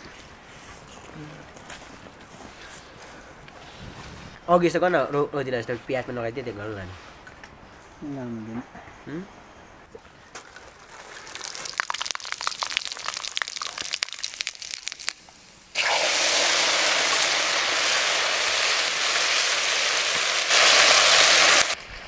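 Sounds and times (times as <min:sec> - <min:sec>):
sharp crackling and popping: 0:10.0 - 0:21.8
food sizzling in hot oil: 0:11.0 - 0:15.2, 0:15.8 - 0:21.8.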